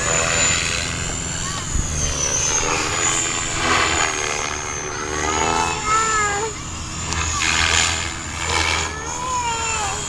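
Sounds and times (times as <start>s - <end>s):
rc helicopter rotor whine: 0.0s - 10.0s
wind buffeting microphone: 0.9s - 5.8s.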